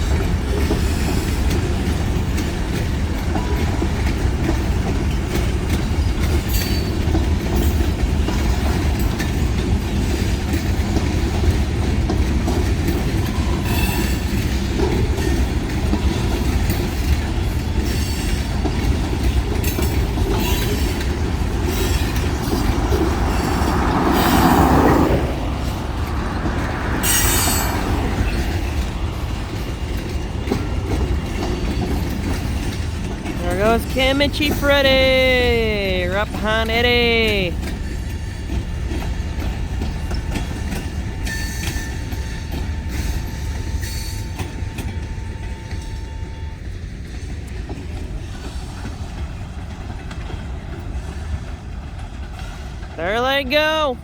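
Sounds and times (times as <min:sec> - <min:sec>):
wheels clicking over rail joints: 0:00.0 - 0:36.4, 0:37.0 - 0:54.0
freight train rumble: 0:00.0 - 0:54.0
wheel squeal: 0:26.7 - 0:28.6.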